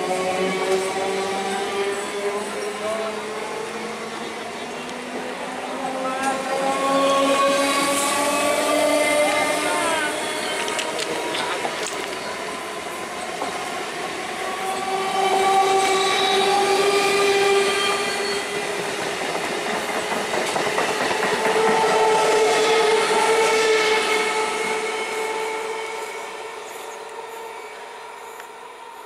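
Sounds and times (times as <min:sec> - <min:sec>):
train wheels clattering on rails: 0:10.3 - 0:12.6, 0:14.6 - 0:23.6
train horn blasts: 0:15.0 - 0:18.4, 0:21.3 - 0:26.8.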